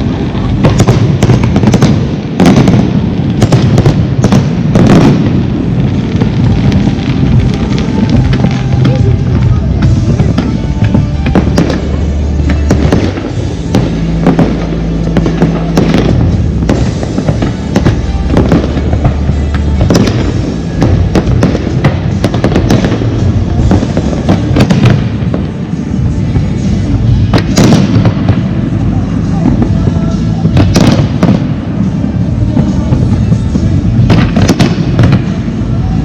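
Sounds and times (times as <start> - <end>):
fireworks bangs and crackles: 0.0 - 36.0
music with heavy bass: 0.0 - 36.0.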